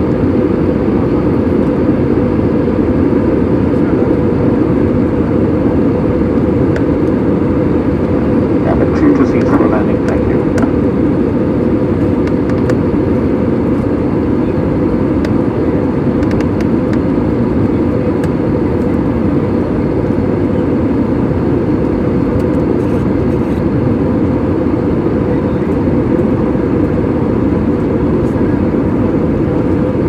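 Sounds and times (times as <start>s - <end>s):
airliner cabin engine noise: 0.0s - 30.0s.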